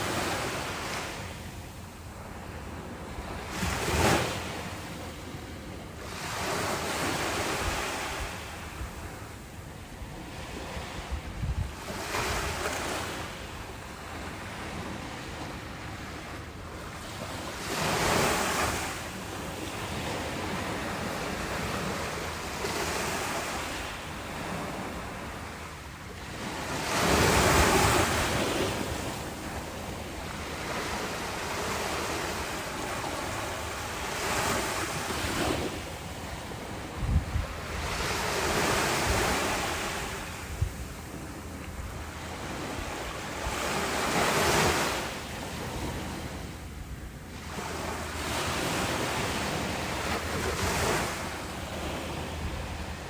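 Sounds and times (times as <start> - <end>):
ocean waves breaking: 0.0 - 53.0
wind hitting microphone: 10.9 - 12.7, 36.6 - 43.8.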